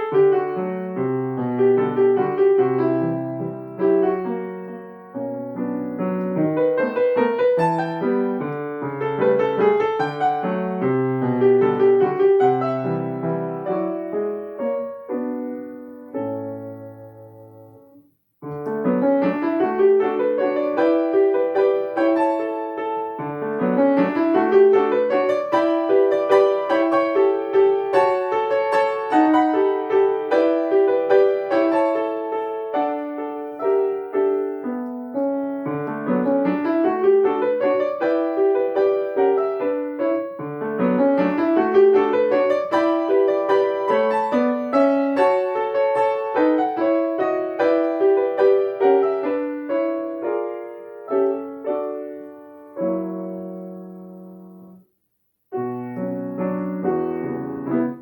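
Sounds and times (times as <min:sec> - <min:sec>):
solo piano waltz: 0:00.0 - 0:58.0.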